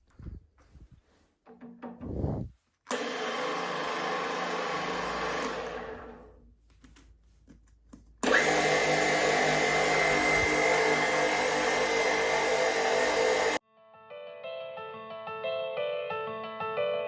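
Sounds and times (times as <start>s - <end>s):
drill press gear whine: 2.9s - 6.3s, 8.2s - 13.6s.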